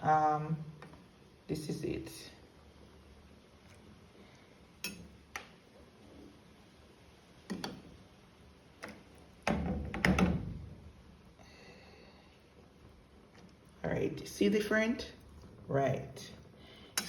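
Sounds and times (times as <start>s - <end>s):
spoon clinking against pot: 4.8s - 5.1s.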